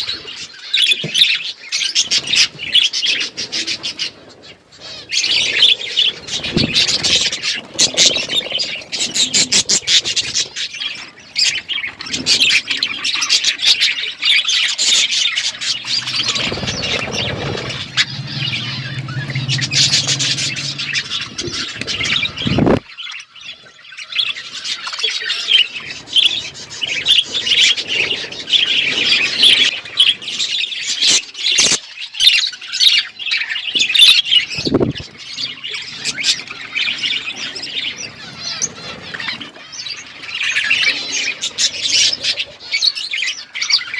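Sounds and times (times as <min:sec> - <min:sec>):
budgies chattering and chirping: 0:00.0 - 0:43.9
low hum: 0:15.7 - 0:22.8.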